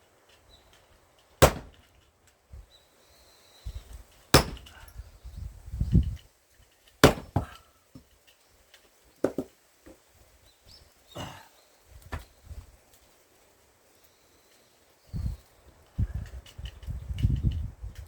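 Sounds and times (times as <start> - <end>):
axe chopping firewood: 1.4 - 1.9, 4.3 - 4.9, 7.0 - 7.7, 9.2 - 9.5
dull wood knocks: 7.0 - 7.6, 9.2 - 9.5.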